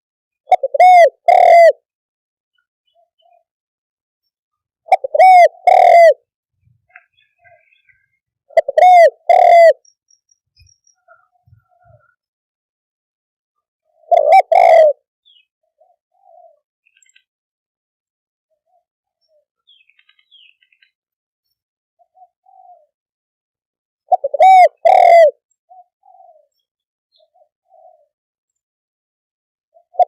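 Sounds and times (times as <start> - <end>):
dove cooing: 0.5 - 1.9, 4.9 - 9.8, 11.0 - 12.2, 13.8 - 16.6, 22.0 - 23.0, 24.1 - 28.2, 29.7 - 30.0.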